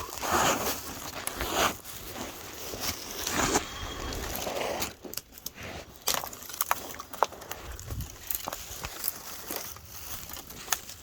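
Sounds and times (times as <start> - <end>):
footsteps rustling dry leaves: 0.0 - 11.0
twigs cracking underfoot: 0.0 - 11.0.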